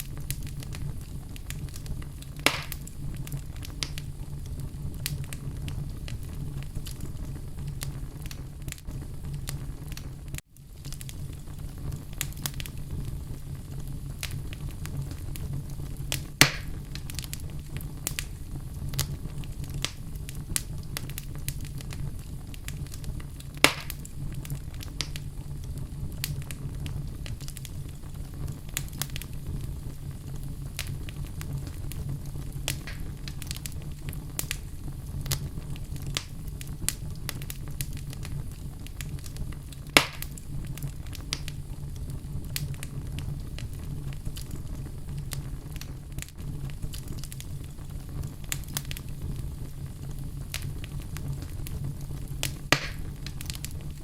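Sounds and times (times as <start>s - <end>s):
sharp loud fire pops: 0.0s - 4.1s, 16.1s - 17.4s, 23.6s - 25.2s, 32.7s - 33.8s, 39.9s - 40.4s, 52.4s - 53.6s
fire crackles: 0.0s - 54.0s
wood fire burning: 0.0s - 54.0s.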